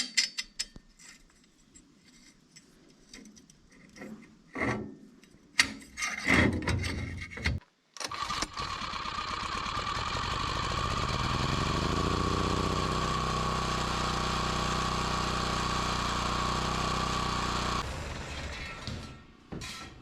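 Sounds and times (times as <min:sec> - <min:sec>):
motor spinning: 0:08.1 - 0:18.5.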